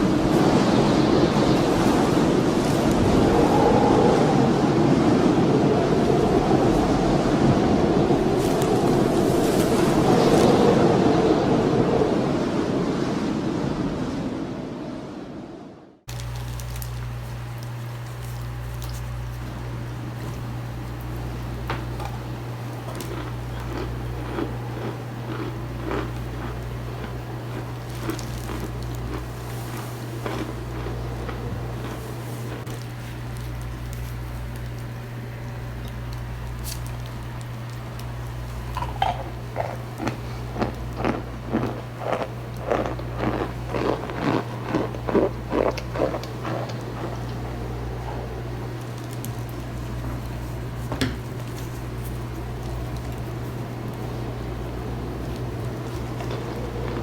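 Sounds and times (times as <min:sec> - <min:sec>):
low electrical hum: 0:00.0 - 0:57.0
starch crunching: 0:16.1 - 0:57.0.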